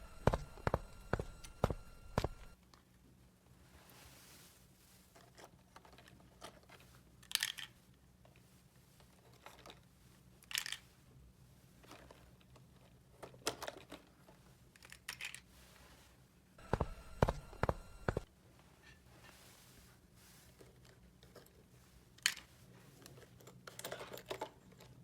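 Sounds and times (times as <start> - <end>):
low steady hum: 0.0 - 2.6, 16.6 - 18.3
rustles of small objects moved: 3.7 - 13.0, 19.0 - 25.0.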